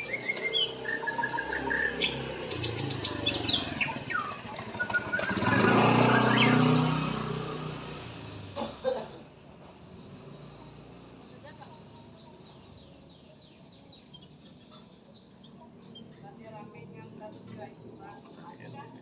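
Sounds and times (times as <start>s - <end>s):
songbird chirps and whistles: 0.0s - 8.0s
passing vehicle: 0.0s - 13.0s.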